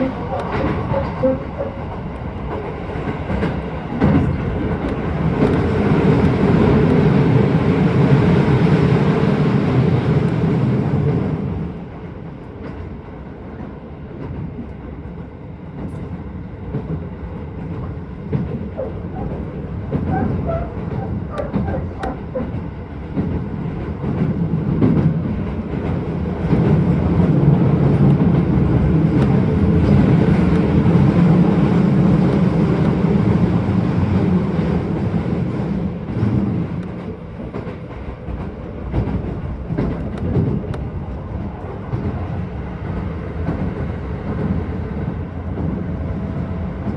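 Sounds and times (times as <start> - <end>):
rail joint clicks: 0.0 - 46.9
train wheels rumbling on rail: 0.0 - 46.9.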